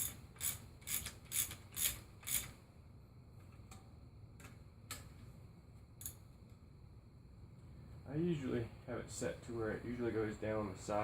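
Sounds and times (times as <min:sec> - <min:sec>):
ratchet wrench clicking: 0:00.0 - 0:02.6.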